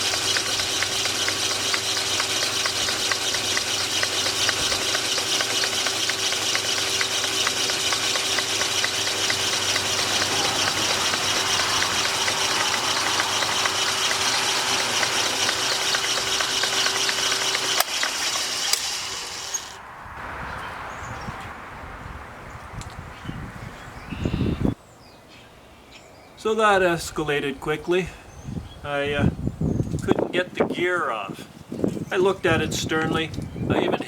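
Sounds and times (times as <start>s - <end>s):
power tool running: 0.0s - 19.8s.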